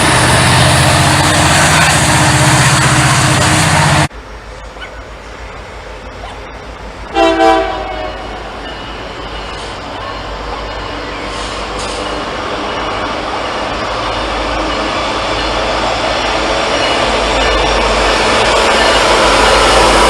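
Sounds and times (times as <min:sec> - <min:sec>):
train rumble: 0:00.0 - 0:20.0
locomotive air horn blast: 0:07.1 - 0:08.5.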